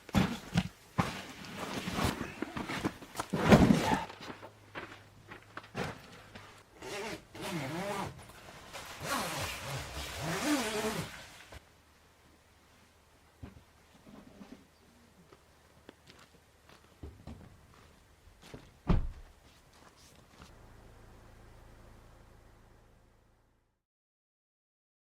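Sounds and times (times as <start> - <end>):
zipper rasping: 6.8 - 8.2, 8.8 - 11.4.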